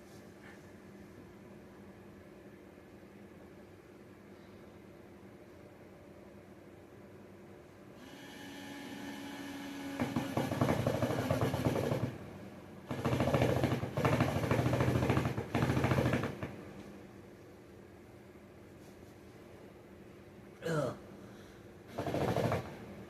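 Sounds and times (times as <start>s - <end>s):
power drill running: 8.0s - 12.1s.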